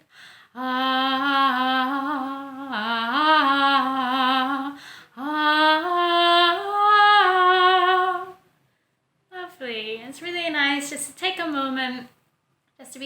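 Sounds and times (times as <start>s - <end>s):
woman singing wordless line: 0.5s - 8.4s.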